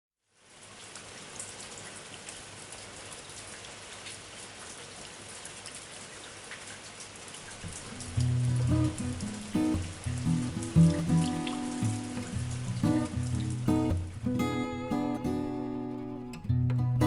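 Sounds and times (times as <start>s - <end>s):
steady rain falling: 0.2s - 16.4s
music: 7.7s - 17.0s.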